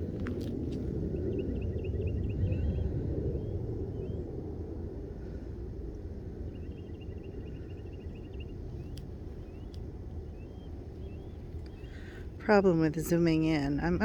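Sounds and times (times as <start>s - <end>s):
low outdoor rumble: 0.0s - 14.0s
faint bird chirps: 6.5s - 12.2s.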